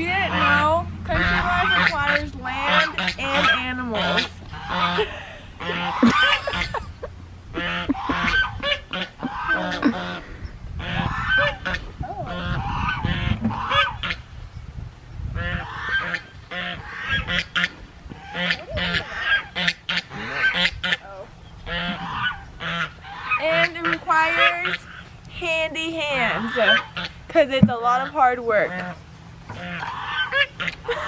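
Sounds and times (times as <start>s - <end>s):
waterfowl honking: 0.0s - 14.4s, 15.3s - 31.0s
low rumble: 0.0s - 23.4s.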